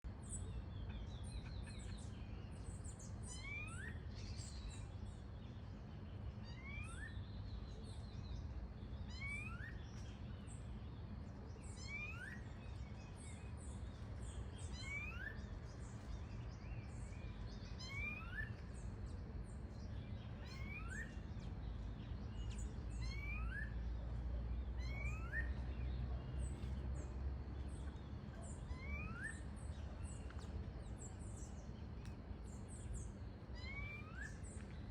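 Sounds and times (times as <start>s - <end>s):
low background rumble: 21.0s - 34.9s.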